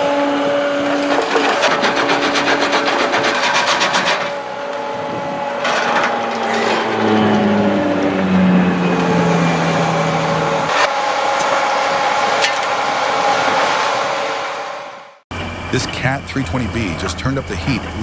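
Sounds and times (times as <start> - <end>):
heavy machine engine running: 0.0 - 18.0.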